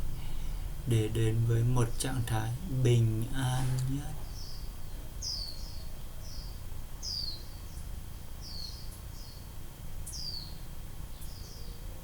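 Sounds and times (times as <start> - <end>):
small bird chirping: 3.8 - 11.9.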